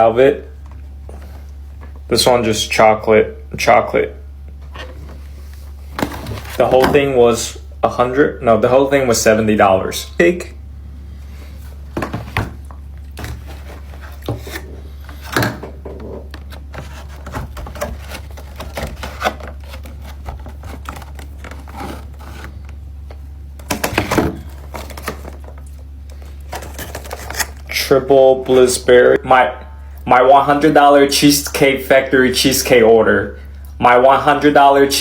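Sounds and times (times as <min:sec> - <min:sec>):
steady low hum: 0:00.0 - 0:35.0
packaging clicks and knocks: 0:15.2 - 0:22.8.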